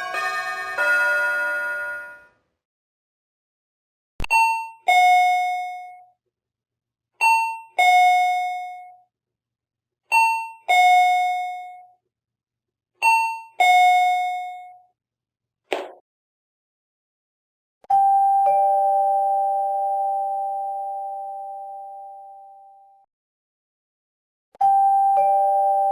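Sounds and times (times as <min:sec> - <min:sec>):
two-tone doorbell chime: 0:00.0 - 0:02.3, 0:17.9 - 0:22.8, 0:24.6 - 0:25.9.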